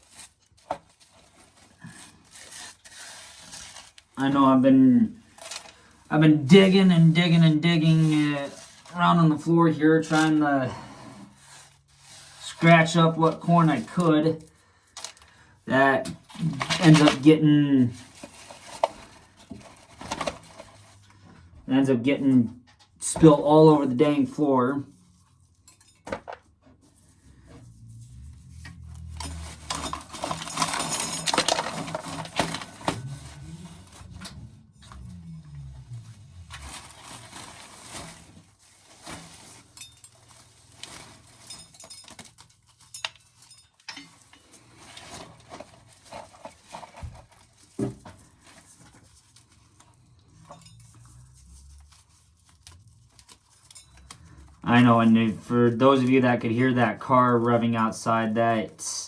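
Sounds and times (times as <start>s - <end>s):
car engine revving: 27.6s - 31.2s.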